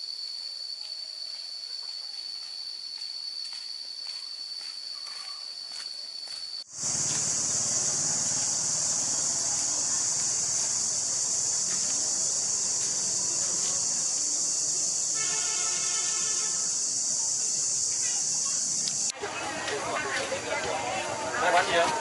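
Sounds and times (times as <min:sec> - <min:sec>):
insect single-tone drone: 0:00.0 - 0:19.2
hissing insect chorus: 0:00.0 - 0:19.4.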